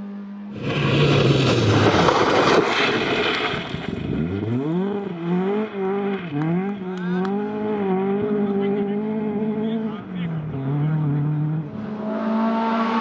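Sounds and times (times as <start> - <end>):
car engine revving through gears: 0.0 - 13.0
rally car passing at speed: 0.0 - 13.0.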